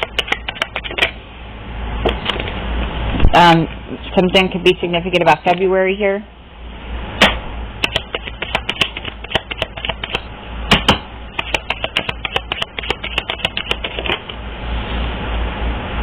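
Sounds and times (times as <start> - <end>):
rapid irregular clicking: 0.0 - 1.2, 7.2 - 14.4.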